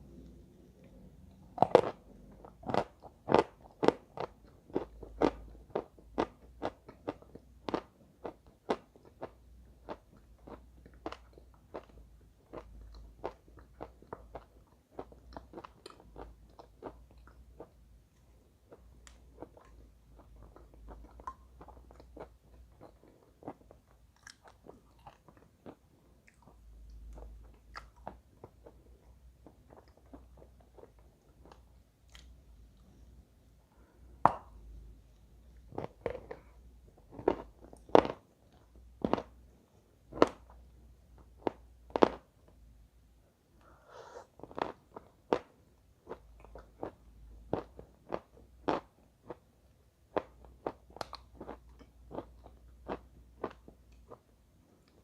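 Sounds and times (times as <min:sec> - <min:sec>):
person chewing crunchy chalk: 0:44.4 - 0:45.5.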